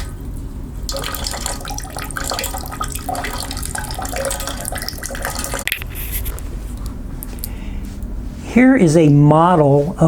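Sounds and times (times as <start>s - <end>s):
running water pouring and splashing: 0.0s - 5.7s.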